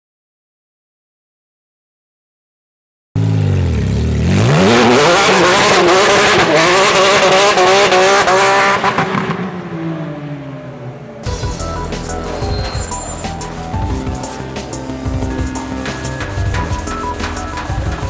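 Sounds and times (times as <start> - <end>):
sports car engine revving: 3.2 - 10.1.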